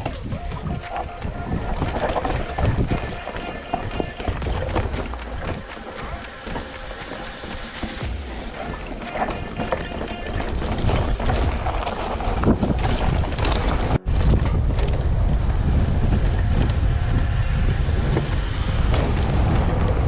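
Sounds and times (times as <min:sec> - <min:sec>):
wind buffeting microphone: 0:08.0 - 0:20.0.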